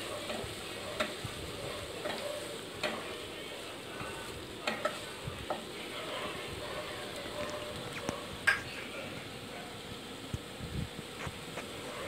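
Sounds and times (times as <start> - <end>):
food sizzling in oil: 0.0 - 11.9.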